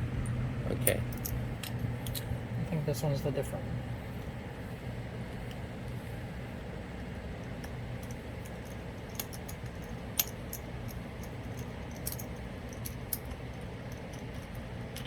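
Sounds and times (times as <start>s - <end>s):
steady low hum: 0.0s - 15.0s
metal bolts and wrench clinking: 7.6s - 15.0s.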